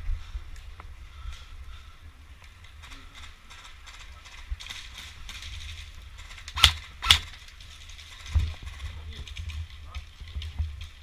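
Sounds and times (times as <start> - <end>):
low wind rumble: 0.0 - 11.0
rustling movement: 0.6 - 11.0
sharp cracks: 2.4 - 11.0.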